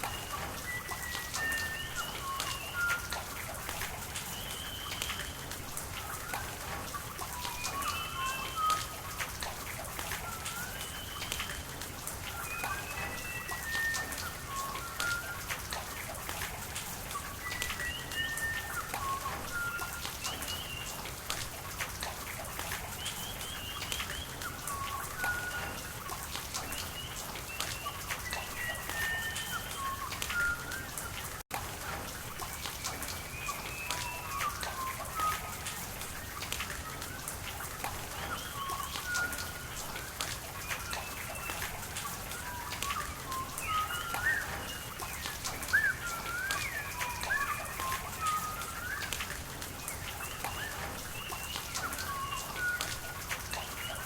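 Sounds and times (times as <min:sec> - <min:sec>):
small birds chirping: 0:00.0 - 0:16.3, 0:22.5 - 0:31.4, 0:32.4 - 0:54.0
rain pattering: 0:00.0 - 0:54.0
running water: 0:00.0 - 0:54.0.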